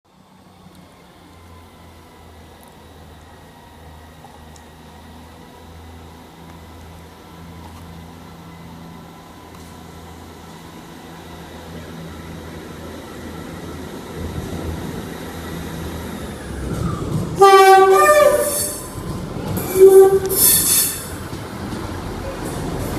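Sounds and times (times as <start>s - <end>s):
diesel train engines throbbing: 0.1s - 22.9s
two-tone train horn: 17.4s - 19.0s, 19.6s - 21.1s.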